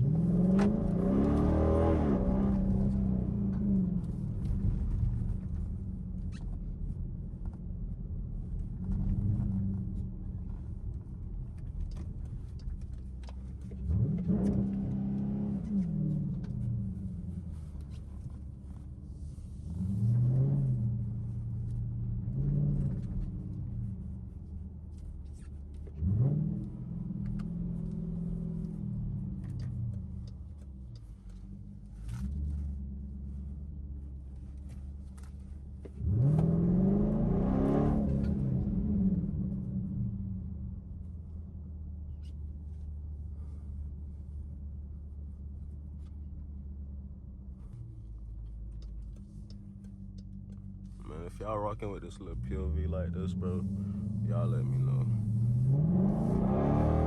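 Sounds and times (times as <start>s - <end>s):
car exhaust revving: 50.2s - 57.0s.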